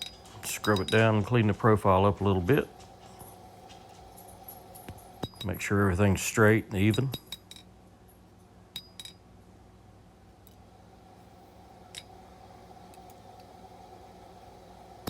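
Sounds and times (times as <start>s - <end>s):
metallic clinks of tools: 0.0s - 1.7s, 6.9s - 9.2s
steady low hum: 0.0s - 15.0s.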